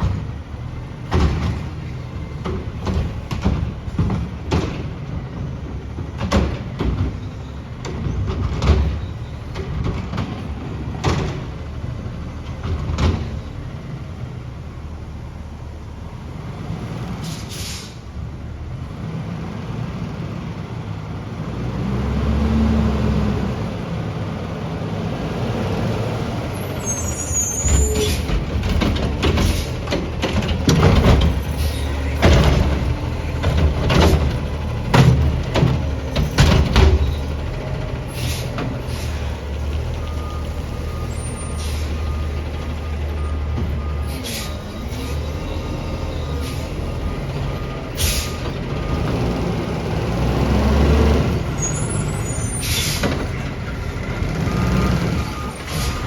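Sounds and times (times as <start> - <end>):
loud bangs and clanks: 0.0 - 11.8, 27.6 - 39.2
diesel truck engine running: 0.0 - 56.0
air brake hiss: 17.2 - 18.1, 38.1 - 39.3, 41.4 - 42.0, 44.1 - 45.1, 48.0 - 48.5, 52.4 - 53.1, 55.7 - 56.0.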